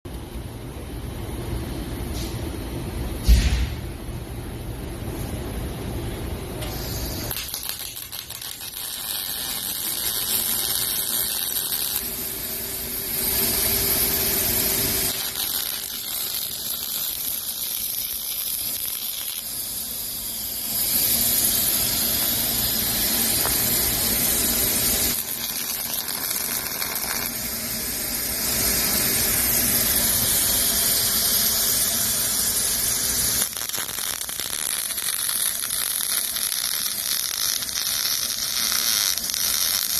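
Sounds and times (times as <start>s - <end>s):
welding arc hiss: 6.5s - 39.9s.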